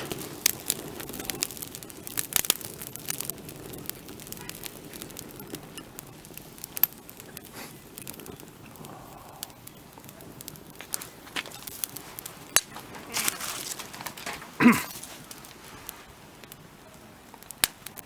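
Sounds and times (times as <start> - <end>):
loud sharp pops: 0.0 - 16.7, 17.3 - 18.0
wood fire crackling: 0.0 - 18.0.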